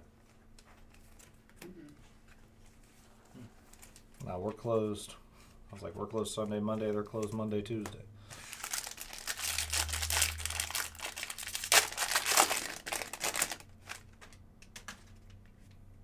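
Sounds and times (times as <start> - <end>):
card pack wrapper crinkling and tearing: 8.3 - 15.0.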